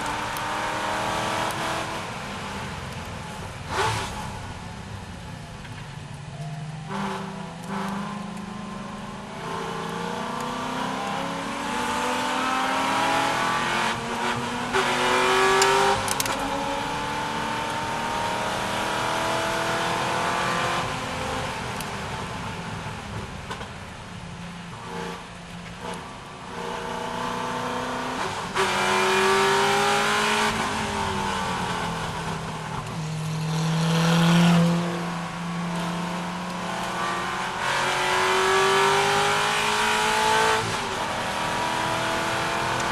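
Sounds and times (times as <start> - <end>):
car engine revving: 6.8 - 22.3, 24.8 - 42.9.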